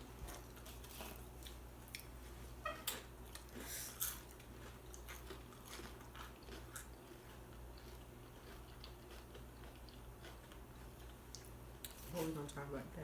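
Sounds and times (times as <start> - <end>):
low steady hum: 0.0 - 13.0
chips crunching: 3.4 - 12.0.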